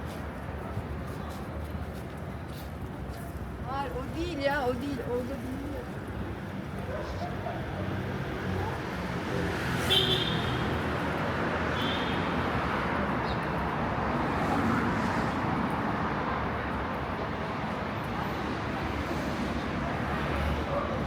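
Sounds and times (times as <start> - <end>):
passing car traffic: 5.6 - 21.0.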